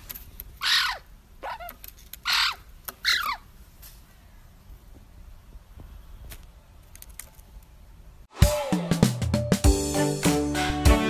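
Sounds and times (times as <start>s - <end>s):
magpie harsh calls: 0.6s - 3.5s.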